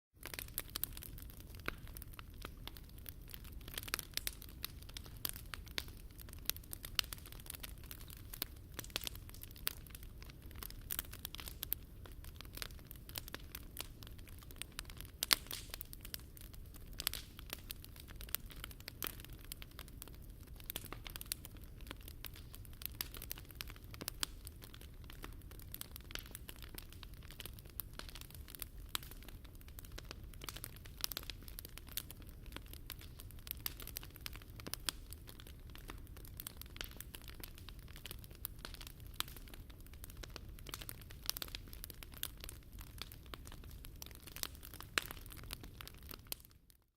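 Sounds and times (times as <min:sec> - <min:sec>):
low rumble of flames: 0:00.2 - 0:46.5
bonfire crackling and popping: 0:00.2 - 0:46.9.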